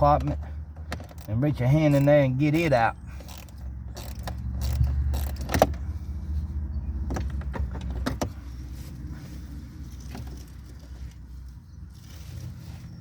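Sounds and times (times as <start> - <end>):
tools and plastic parts clicking: 0.2 - 5.8.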